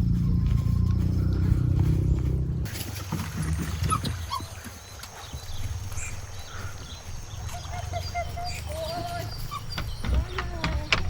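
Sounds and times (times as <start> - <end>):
low rumble: 0.0 - 3.7
animal chirps and calls: 3.6 - 11.0.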